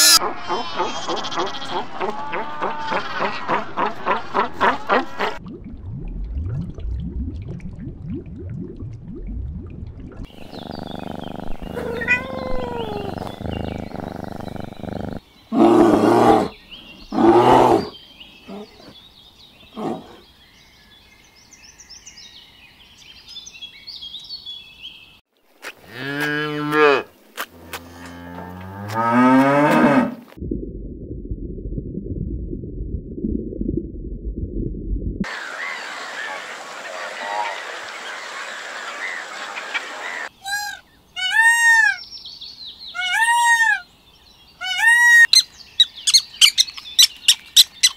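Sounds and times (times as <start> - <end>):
faint high chirping: 10.3 - 15.6, 44.7 - 47.9
long sliding animal calls: 10.3 - 16.5, 35.3 - 41.9, 46.0 - 47.9
loud short animal calls: 11.5 - 13.8
low steady rumble: 30.4 - 35.2.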